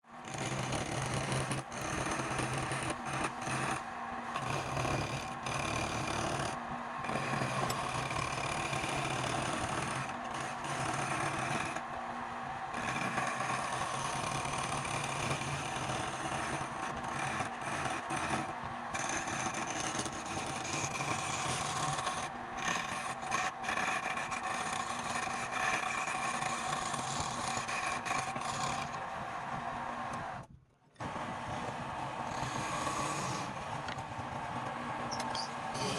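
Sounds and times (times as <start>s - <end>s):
turning tool scraping wood: 0.2s - 30.3s, 31.0s - 35.9s
wood lathe running: 0.2s - 30.4s, 31.1s - 35.9s.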